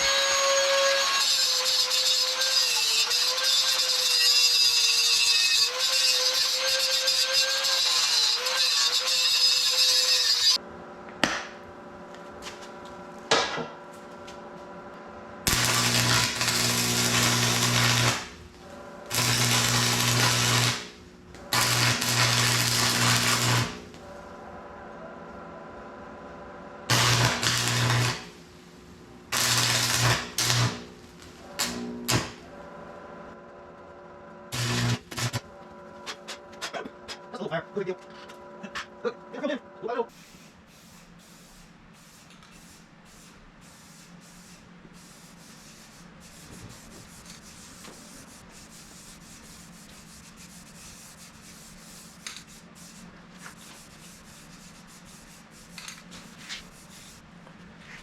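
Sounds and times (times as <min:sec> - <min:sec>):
tool noise with wavering whine: 0:00.0 - 0:40.1, 0:46.4 - 0:57.2
welder low hum: 0:00.0 - 0:40.1
welding arc crackling: 0:15.4 - 0:24.0, 0:26.9 - 0:28.6, 0:29.2 - 0:32.5, 0:34.5 - 0:35.5.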